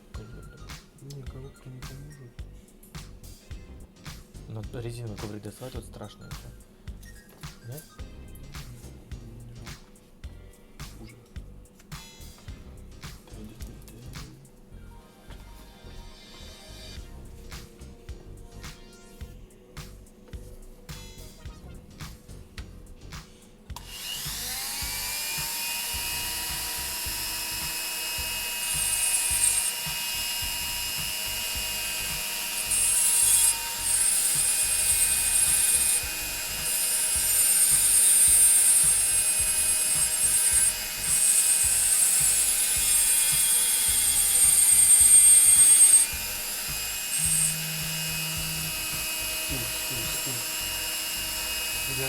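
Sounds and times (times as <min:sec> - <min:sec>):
high-pitched grinding of glass: 0:06.1 - 0:07.9, 0:24.4 - 0:52.0
rotary tool whining: 0:23.8 - 0:52.0.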